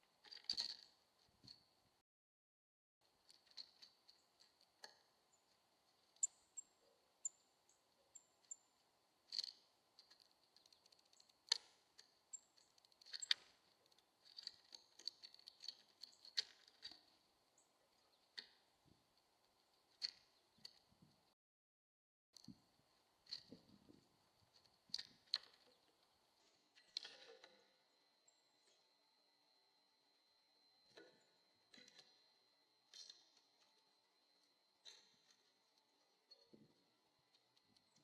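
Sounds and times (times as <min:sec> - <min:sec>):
faint high whine: 0:22.4 - 0:38.0.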